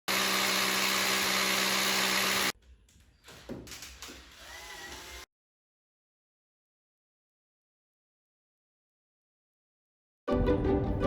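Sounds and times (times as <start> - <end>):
small electric motor humming: 0.0 - 2.6.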